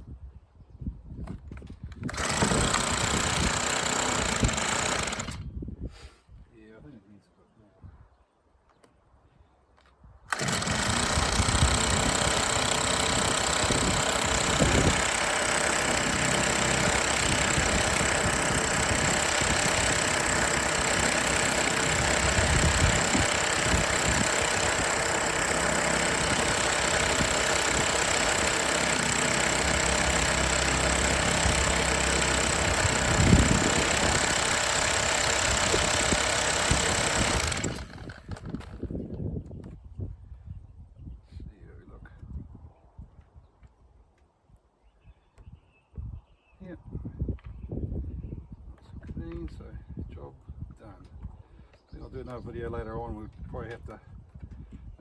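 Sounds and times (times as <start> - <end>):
small petrol engine running: 2.1 - 5.4, 10.3 - 38.8.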